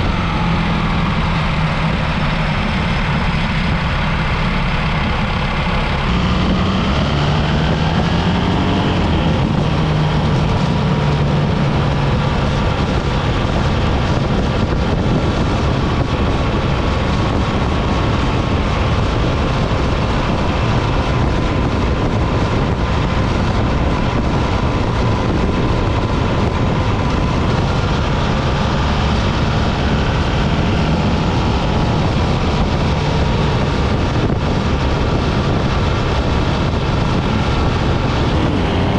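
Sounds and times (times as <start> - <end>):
motorcycle engine running: 0.0 - 38.9
wind rush and road noise: 0.0 - 38.9.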